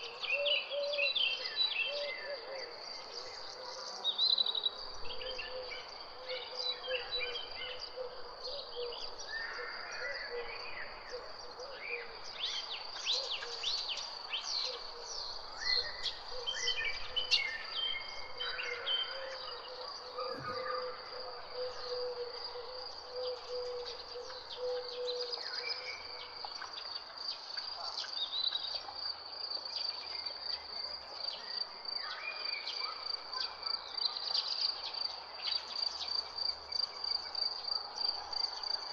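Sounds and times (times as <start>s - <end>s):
birds chirping and trilling: 0.0s - 28.6s.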